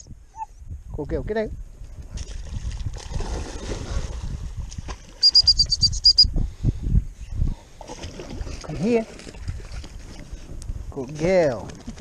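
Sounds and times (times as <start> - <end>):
wind rumble on microphone: 0.0 - 12.0
dog-training whistle pips: 5.2 - 6.3.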